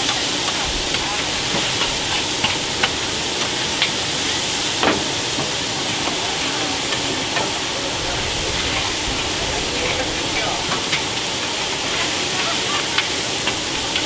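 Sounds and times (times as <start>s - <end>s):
noodles sizzling in woks: 0.0s - 14.0s
spatula clinking against pans: 4.9s - 14.0s.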